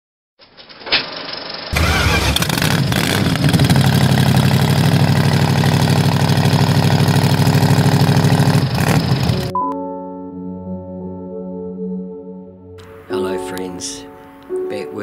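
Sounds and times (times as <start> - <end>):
vehicle engine running: 1.1 - 9.5.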